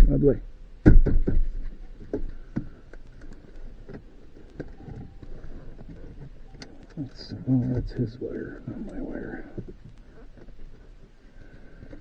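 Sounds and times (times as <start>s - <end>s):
loud knock on plastic: 0.8s - 1.5s.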